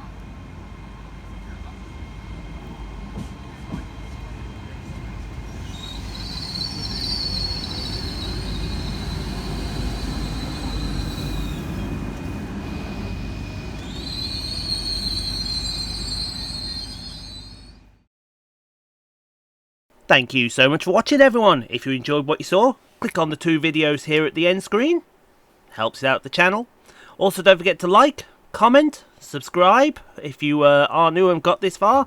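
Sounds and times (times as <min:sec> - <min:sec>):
train rumbling: 0:00.0 - 0:18.0
steel on rail squeals: 0:05.4 - 0:18.0.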